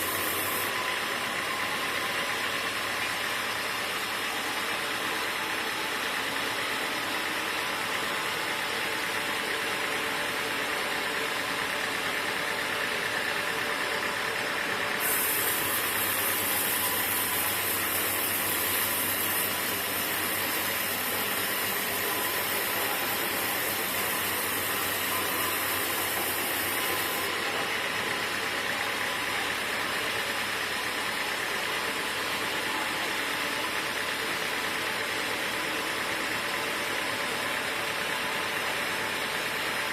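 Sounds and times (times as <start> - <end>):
high hiss: 0.0 - 0.7, 15.0 - 27.3
sawmill machinery running: 0.0 - 39.9.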